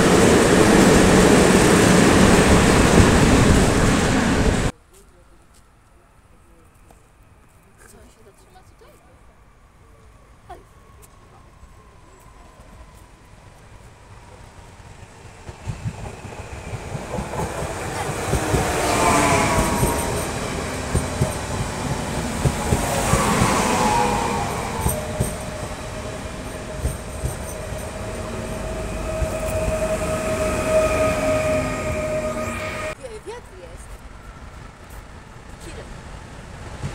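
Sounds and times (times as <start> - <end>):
train passing at speed: 0.0 - 4.7, 6.1 - 36.9
train motor whine: 17.1 - 33.0.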